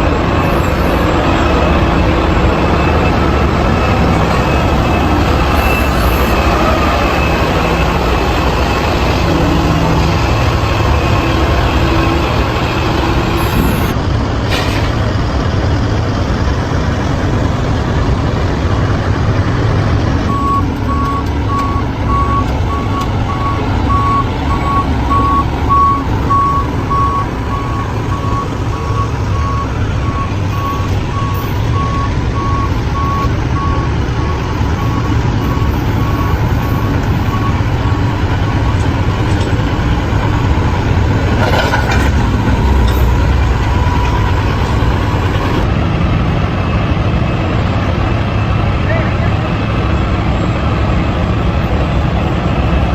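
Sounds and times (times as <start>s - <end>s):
truck engine running: 0.0s - 52.9s
reversing alarm beeps: 0.1s - 14.0s, 20.3s - 40.5s, 41.4s - 45.6s.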